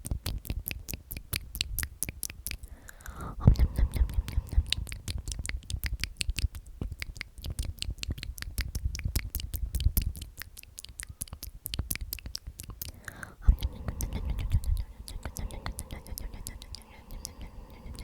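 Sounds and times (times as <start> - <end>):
crackly clicks and scratching: 0.0 - 18.0
soft low rumble: 3.3 - 6.0, 12.8 - 18.0.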